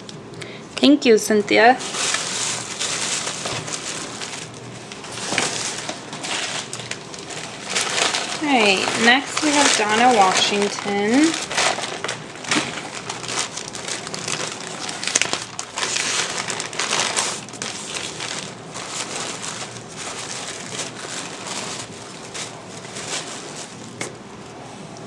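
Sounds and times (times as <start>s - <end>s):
packaging crinkling and rustling: 1.6s - 24.6s.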